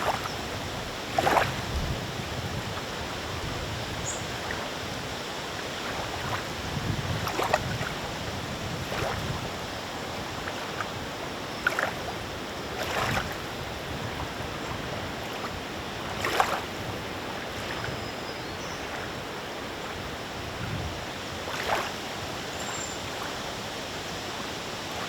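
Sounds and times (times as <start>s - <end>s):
wind hiss: 0.0s - 18.0s
small waves lapping: 0.0s - 25.0s
water splashes: 0.0s - 25.0s.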